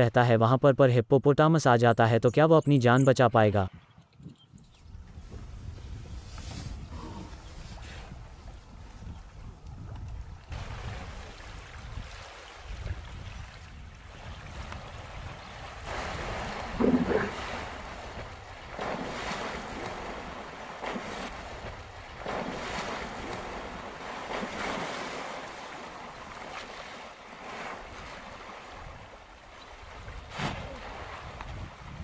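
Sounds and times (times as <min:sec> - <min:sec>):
wind rumbling on microphone: 0:03.6 - 0:24.9, 0:27.8 - 0:32.0
water splashing and sloshing: 0:07.7 - 0:32.0.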